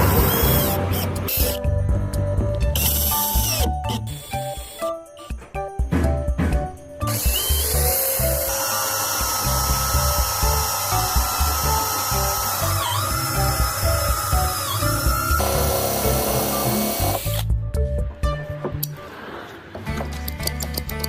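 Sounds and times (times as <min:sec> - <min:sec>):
power drill running: 0:00.0 - 0:01.6, 0:02.8 - 0:04.8, 0:07.1 - 0:17.4
background music with beat: 0:01.4 - 0:07.5.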